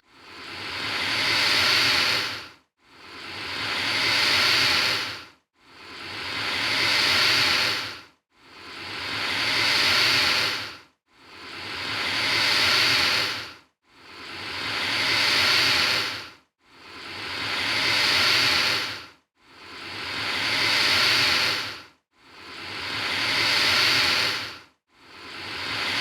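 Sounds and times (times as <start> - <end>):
alligator hissing: 0.2 - 2.4, 3.1 - 5.2, 5.8 - 8.0, 8.6 - 10.7, 11.4 - 13.5, 14.1 - 16.2, 16.9 - 19.0, 19.7 - 21.8, 22.4 - 24.6, 25.2 - 26.0.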